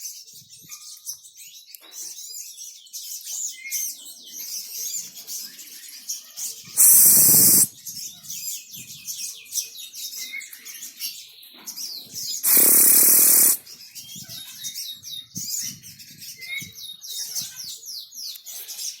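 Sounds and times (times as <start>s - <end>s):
hiss-like noise burst: 6.8s - 7.7s, 12.4s - 13.6s.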